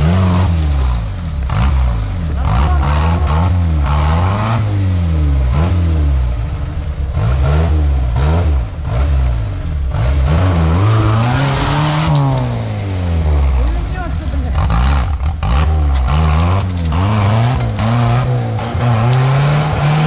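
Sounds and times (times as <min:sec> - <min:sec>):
vehicle engine revving: 0:00.0 - 0:20.0.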